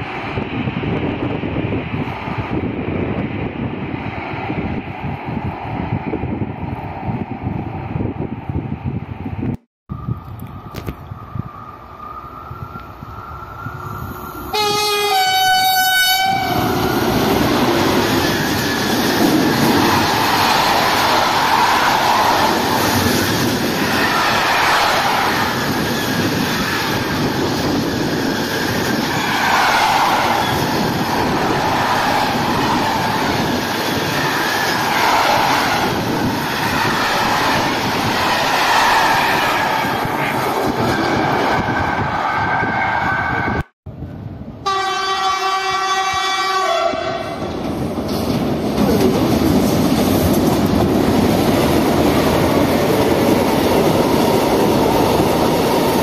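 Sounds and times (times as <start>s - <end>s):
train wheels rumbling on rails: 0.0s - 56.0s
locomotive horn: 14.5s - 16.8s, 44.6s - 47.4s.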